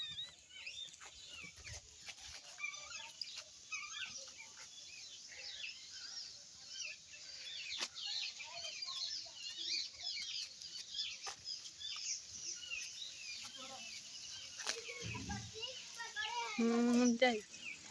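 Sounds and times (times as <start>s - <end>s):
birds chirping in chorus: 0.0s - 17.9s.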